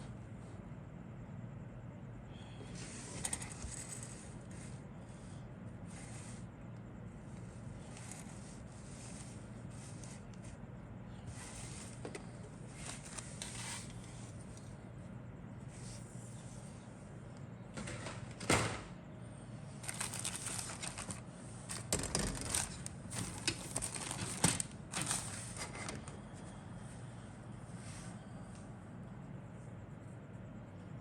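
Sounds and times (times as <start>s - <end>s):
plastic parts rustling and clicking: 11.9s - 14.0s, 19.8s - 26.1s.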